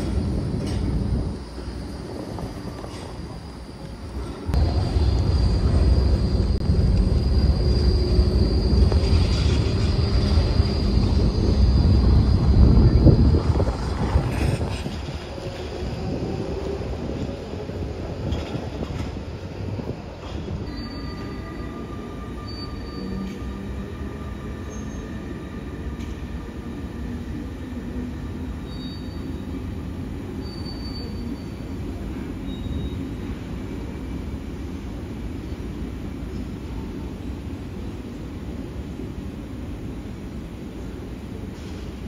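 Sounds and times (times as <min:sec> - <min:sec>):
train rumble: 0:00.0 - 0:42.0
faint wheel squeals: 0:20.6 - 0:23.5, 0:30.4 - 0:31.8, 0:32.4 - 0:33.1.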